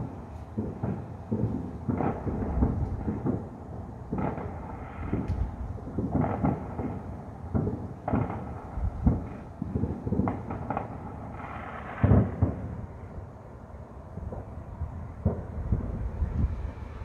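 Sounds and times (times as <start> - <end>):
distant firework booms: 0.0 - 12.9, 14.3 - 17.0
faint firework crackles: 0.0 - 17.0.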